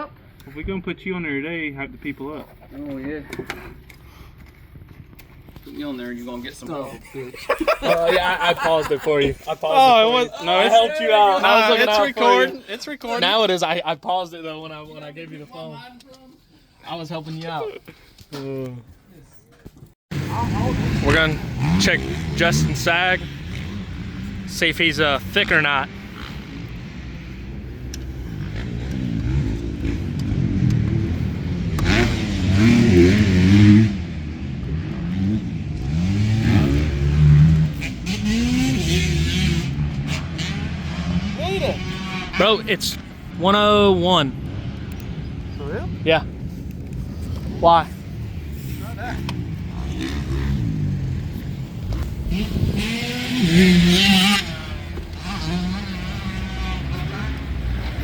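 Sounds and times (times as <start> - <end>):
dirt bike engines revving: 1.3 - 15.7, 20.1 - 58.0.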